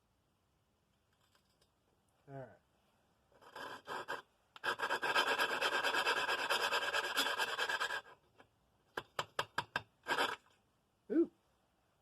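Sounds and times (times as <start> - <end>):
valve lapping gritty scraping: 10.0 - 10.4.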